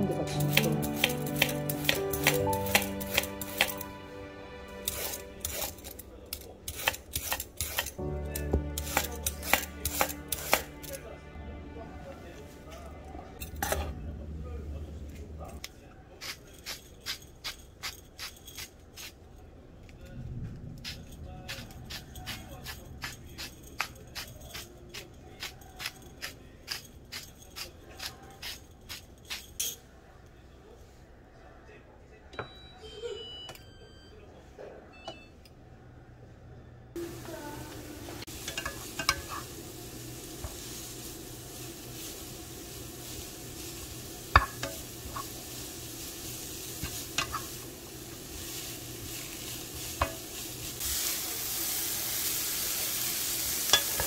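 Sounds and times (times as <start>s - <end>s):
soft background music: 0.0s - 6.8s, 7.8s - 14.6s
knife cutting vegetables on board: 0.5s - 3.8s, 6.7s - 8.0s, 8.6s - 10.8s.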